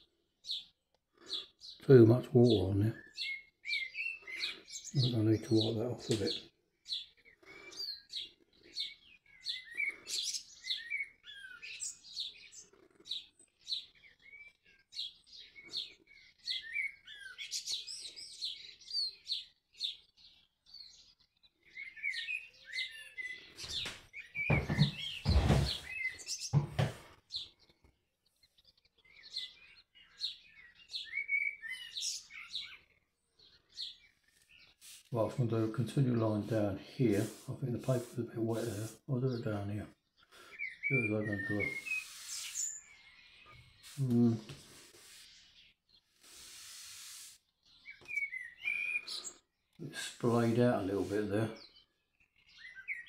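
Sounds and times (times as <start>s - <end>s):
birds chirping: 0.0s - 53.0s
loud bumps: 24.5s - 25.9s.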